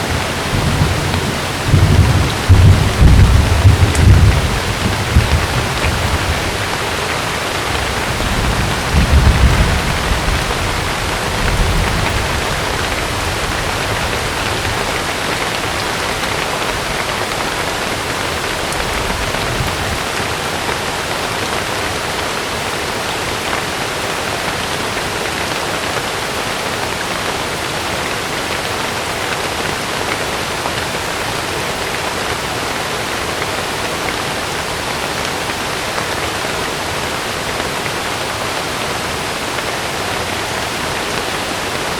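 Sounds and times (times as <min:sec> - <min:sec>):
low thunder rumbles: 0:00.0 - 0:15.2, 0:18.5 - 0:20.1
heavy rain: 0:00.0 - 0:41.9.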